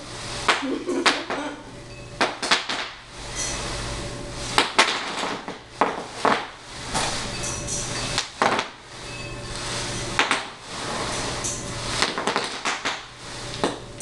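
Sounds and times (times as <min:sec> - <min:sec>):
steady low hum: 0:00.0 - 0:14.0
bubble wrap popping under wheels: 0:12.0 - 0:13.8.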